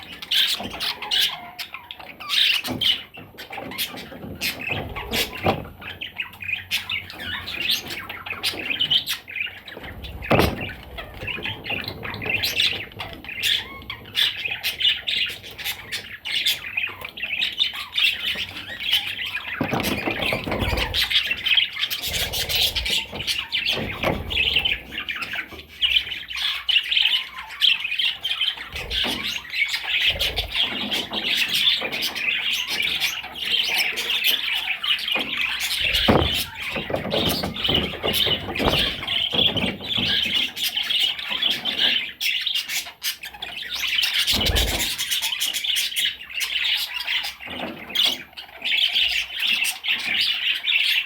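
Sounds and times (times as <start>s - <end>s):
budgerigar warbling and chattering: 0.0s - 51.0s.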